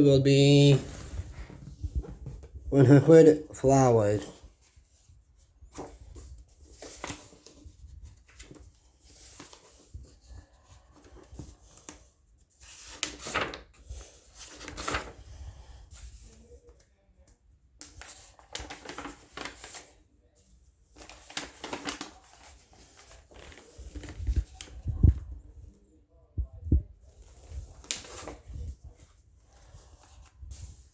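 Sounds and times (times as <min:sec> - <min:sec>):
paper pages turning and rustling: 0:00.4 - 0:02.6, 0:03.7 - 0:16.9, 0:17.8 - 0:25.8, 0:27.0 - 0:30.9.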